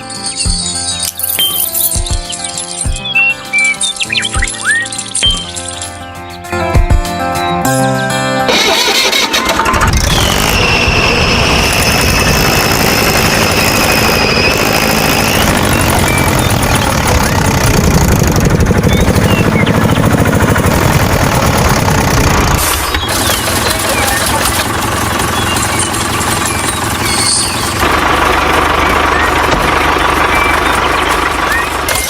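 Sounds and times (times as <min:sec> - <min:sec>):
engine chugging: 0:08.5 - 0:32.0
high steady whine: 0:09.7 - 0:23.0.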